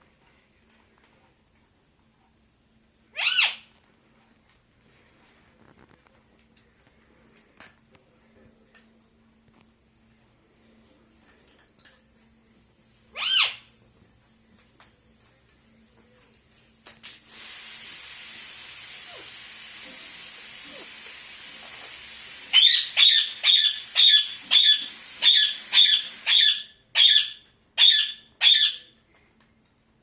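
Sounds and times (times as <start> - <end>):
parakeet screeching: 3.1 - 3.7, 13.2 - 13.6, 22.5 - 28.9
steady hiss: 13.8 - 26.4.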